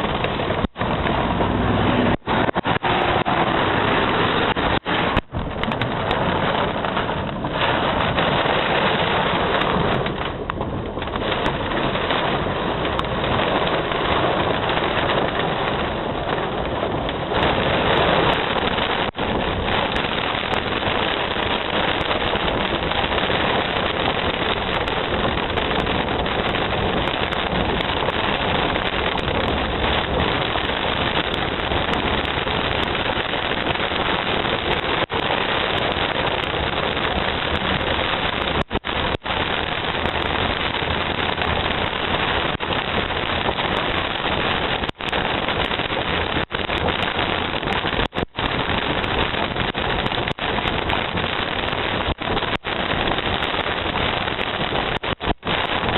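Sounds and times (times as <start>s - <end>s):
heavy rain pouring: 0.0s - 55.9s.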